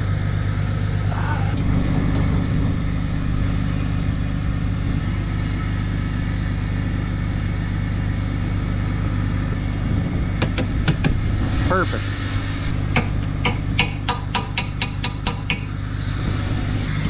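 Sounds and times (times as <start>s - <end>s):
diesel truck engine idling: 12.4s - 17.0s.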